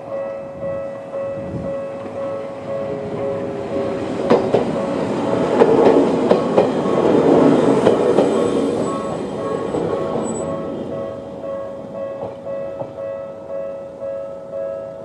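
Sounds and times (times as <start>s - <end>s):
electronic crossing warning bell: 0.0s - 15.0s
train wheels clacking over rail joints: 3.3s - 10.5s, 12.1s - 13.0s.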